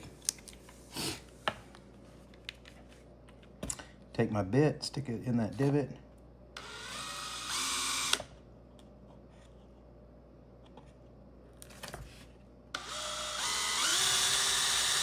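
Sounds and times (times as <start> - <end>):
power drill drilling into plastic: 6.6 - 8.3, 12.8 - 15.0.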